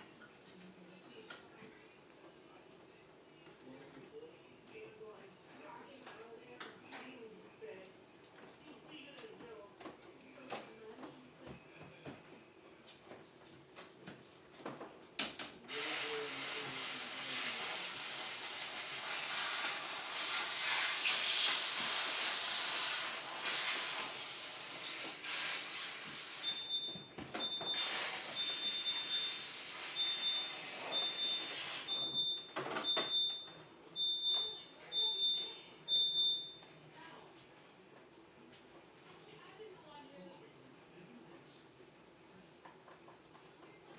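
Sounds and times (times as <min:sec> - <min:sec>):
loud steady hiss: 0:15.7 - 0:26.8, 0:27.7 - 0:31.9.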